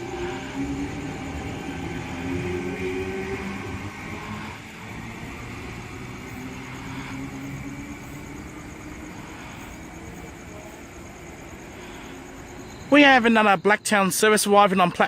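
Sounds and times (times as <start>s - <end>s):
train wheel rumble: 0.0s - 12.6s.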